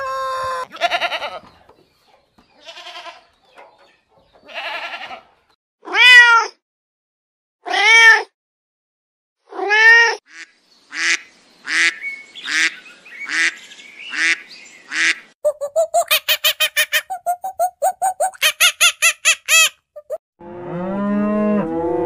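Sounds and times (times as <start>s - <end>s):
cat meowing: 5.9s - 6.5s
duck quacking: 10.3s - 20.2s
high chattering calls: 10.9s - 20.2s.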